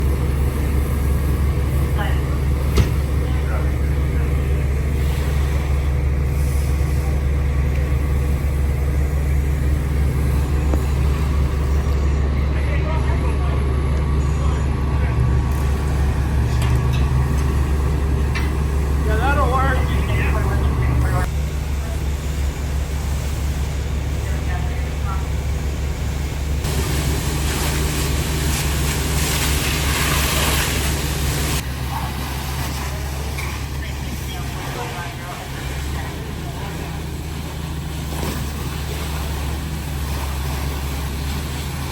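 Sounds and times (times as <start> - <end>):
truck engine droning: 0.0 - 41.9
loud rushing hiss: 25.9 - 31.6.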